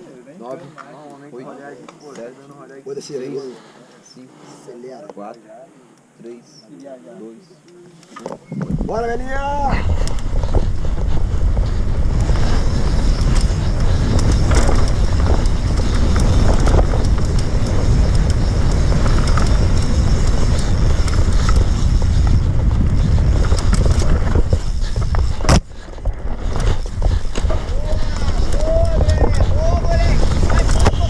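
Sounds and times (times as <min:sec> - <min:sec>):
wind buffeting microphone: 0:08.4 - 0:31.0
tyres rolling over dirt and rocks: 0:08.6 - 0:31.0
bike rattling and knocking: 0:08.8 - 0:31.0.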